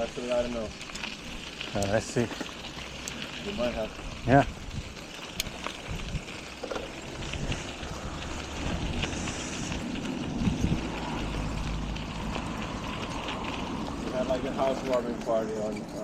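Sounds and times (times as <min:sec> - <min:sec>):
bicycle road noise: 0:00.0 - 0:16.0
wind buffeting microphone: 0:03.0 - 0:15.2.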